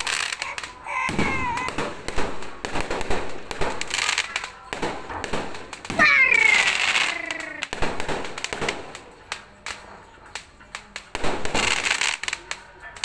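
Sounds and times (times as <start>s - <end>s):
firework whistle: 0.0s - 9.0s
firecracker bangs and pops: 0.0s - 13.0s
fireworks crackle: 0.0s - 13.0s.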